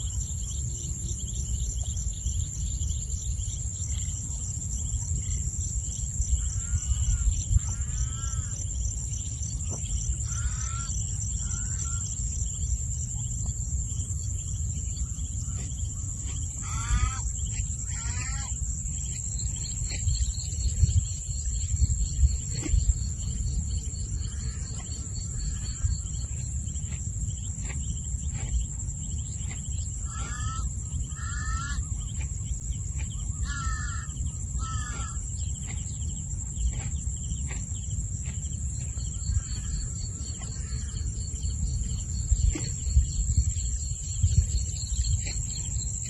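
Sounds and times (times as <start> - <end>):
insect chorus buzzing: 0.0 - 46.0
bird calling: 29.4 - 36.9.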